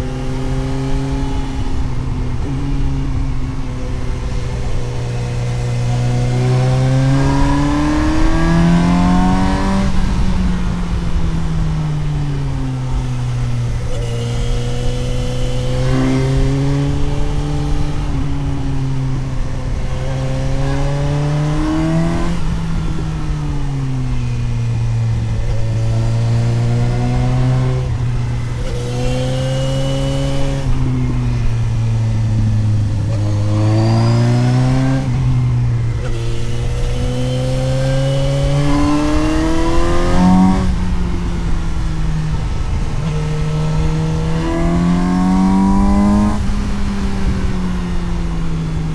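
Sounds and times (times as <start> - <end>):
low wind rumble: 0.0 - 48.9
motorcycle engine revving: 0.0 - 48.9.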